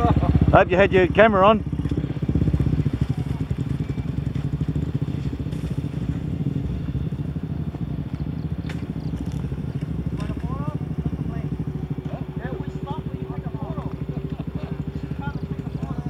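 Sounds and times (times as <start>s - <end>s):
motorbike engine running: 0.0s - 16.0s
faint clicks: 8.1s - 10.5s.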